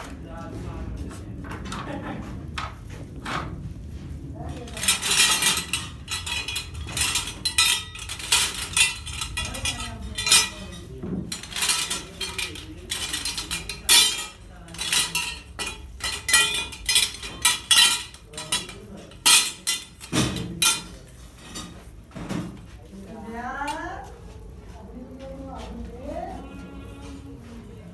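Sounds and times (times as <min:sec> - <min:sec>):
metal pieces clinking: 0:04.6 - 0:21.7.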